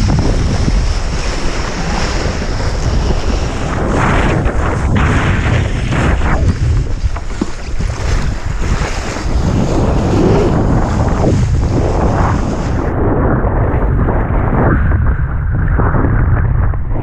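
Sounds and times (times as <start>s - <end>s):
rushing splashing water: 0.0s - 12.9s
wind buffeting microphone: 0.0s - 17.0s.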